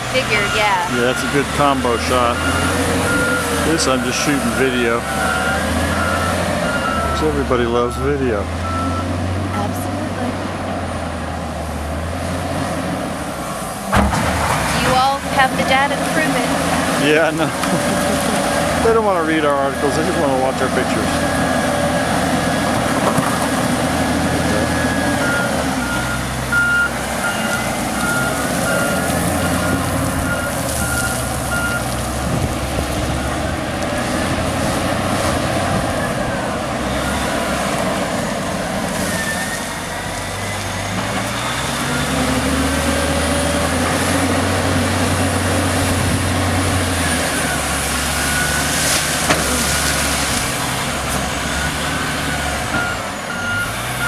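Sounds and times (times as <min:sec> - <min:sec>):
diesel engine working: 0:00.0 - 0:54.0
reversing alarm beeping: 0:00.2 - 0:09.2, 0:24.4 - 0:31.9, 0:36.1 - 0:37.7, 0:47.0 - 0:50.1, 0:51.5 - 0:54.0.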